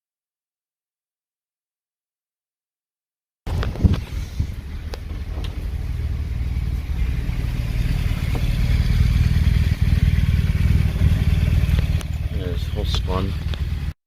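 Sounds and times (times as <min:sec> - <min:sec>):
vehicle engine pulsing rumble: 0:03.5 - 0:14.0
sharp clicks: 0:11.7 - 0:12.2.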